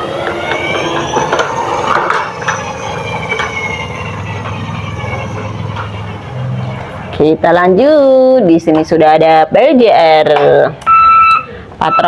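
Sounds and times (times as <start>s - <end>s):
toy wheels rolling rattle: 0.0s - 7.2s
thin falling whine: 0.0s - 8.2s.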